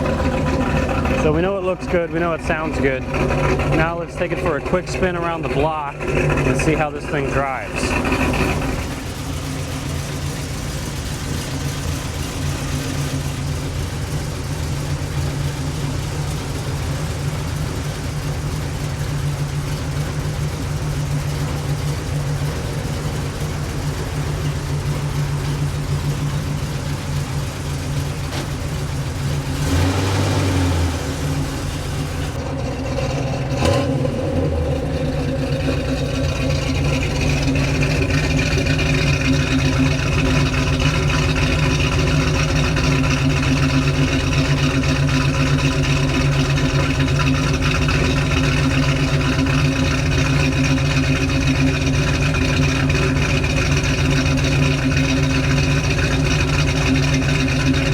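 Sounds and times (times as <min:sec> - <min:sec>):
vee eight engine idling: 0:00.0 - 0:57.9.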